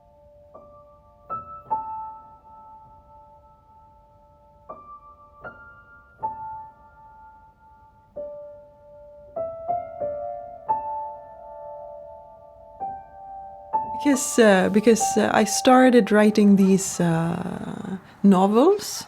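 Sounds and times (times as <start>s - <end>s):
slow soft piano: 0.0s - 18.2s.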